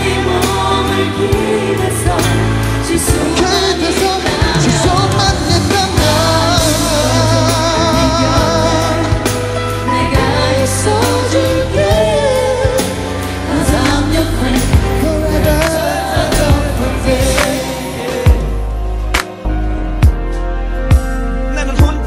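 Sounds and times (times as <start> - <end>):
pop song with singing: 0.0 - 22.0.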